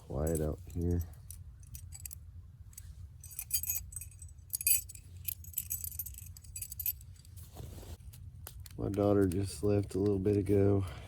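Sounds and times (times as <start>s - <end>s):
camp gear jingling and clinking: 0.0s - 8.0s
low steady rumble: 0.0s - 11.0s.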